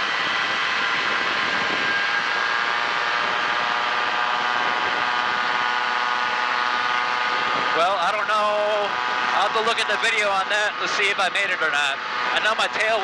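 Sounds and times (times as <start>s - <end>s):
airplane engine and propeller: 0.0s - 13.0s.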